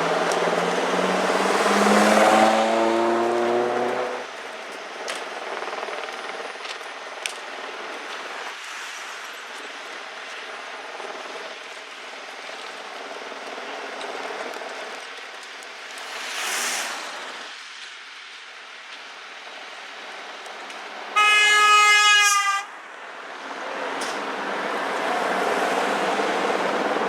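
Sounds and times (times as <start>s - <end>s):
heavy vehicle engine and road noise: 0.0s - 27.0s
brief hissing whoosh: 16.0s - 17.6s.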